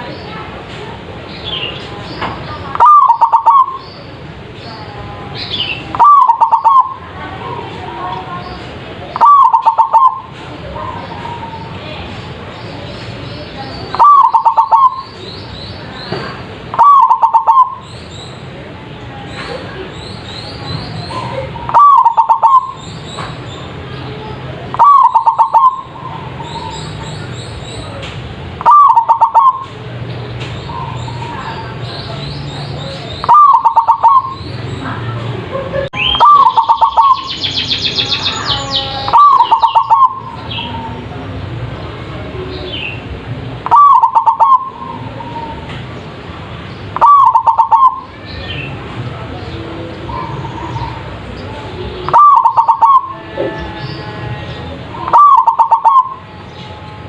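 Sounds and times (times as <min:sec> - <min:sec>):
dove cooing: 0:02.7 - 0:03.8, 0:05.9 - 0:07.0, 0:09.1 - 0:11.6, 0:13.9 - 0:15.1, 0:16.7 - 0:17.8, 0:21.2 - 0:22.8, 0:24.7 - 0:26.8, 0:28.6 - 0:29.7, 0:33.2 - 0:34.4, 0:36.0 - 0:37.3, 0:39.0 - 0:41.0, 0:43.6 - 0:45.6, 0:47.0 - 0:48.1, 0:52.1 - 0:53.7, 0:54.9 - 0:56.2
bird with high falling notes: 0:05.5 - 0:07.0, 0:13.9 - 0:15.2, 0:16.7 - 0:17.8, 0:21.1 - 0:22.8, 0:24.7 - 0:26.8, 0:28.6 - 0:29.7, 0:33.2 - 0:34.5, 0:36.0 - 0:41.0, 0:43.6 - 0:45.6, 0:47.0 - 0:48.7, 0:52.0 - 0:57.0.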